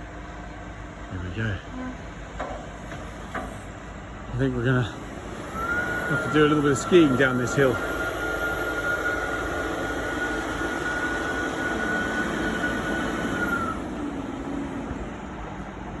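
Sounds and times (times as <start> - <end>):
tractor engines running: 0.0 - 16.0
high steady whine: 4.8 - 16.0.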